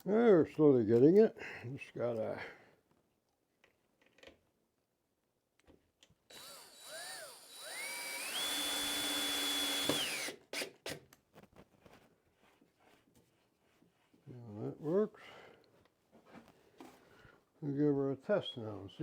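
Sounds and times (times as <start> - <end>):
power drill motor whining: 6.3 - 11.0.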